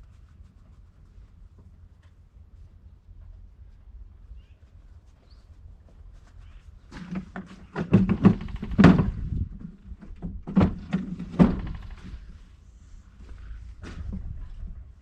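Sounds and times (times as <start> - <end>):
heavy metal clunks and knocks: 7.0 - 12.2.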